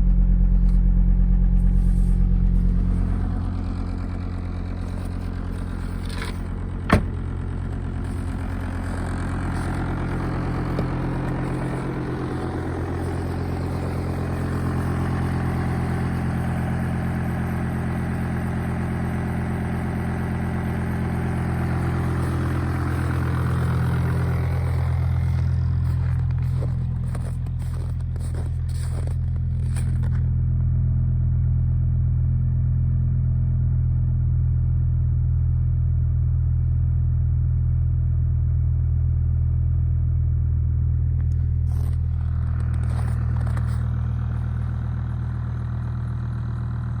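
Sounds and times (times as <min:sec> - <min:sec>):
diesel engine idling: 0:00.0 - 0:31.8, 0:40.8 - 0:47.0.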